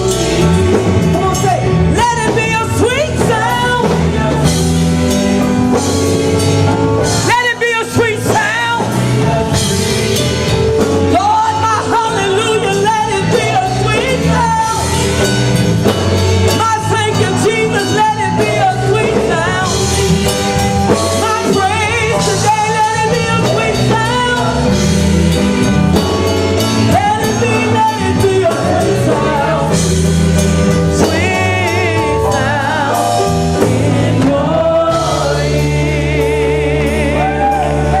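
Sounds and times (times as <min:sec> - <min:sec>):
gospel singing with band: 0:00.0 - 0:38.0.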